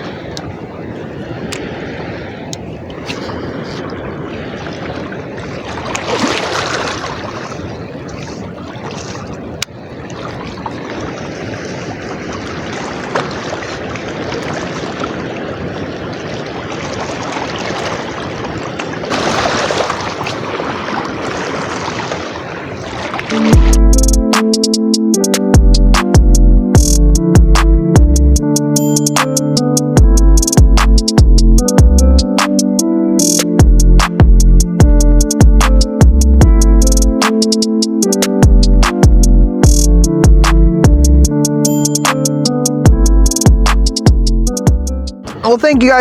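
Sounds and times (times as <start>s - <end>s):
floodwater rushing: 0.0s - 23.9s
electronic music: 23.5s - 46.0s.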